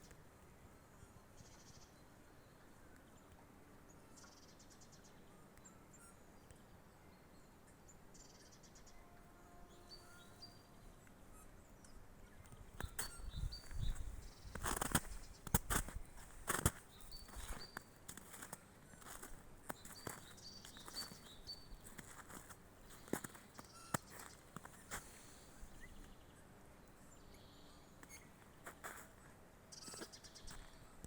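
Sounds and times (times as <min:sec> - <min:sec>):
small birds calling: 0:09.7 - 0:31.0
footsteps crunching: 0:12.9 - 0:25.4, 0:28.0 - 0:29.2.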